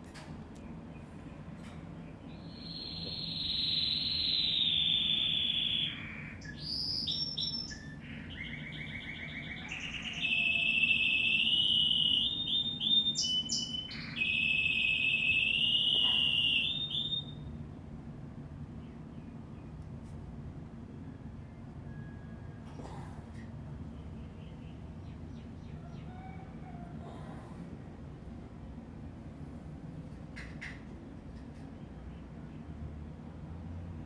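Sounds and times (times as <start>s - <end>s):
bird singing high whistles and trills: 2.3s - 17.6s.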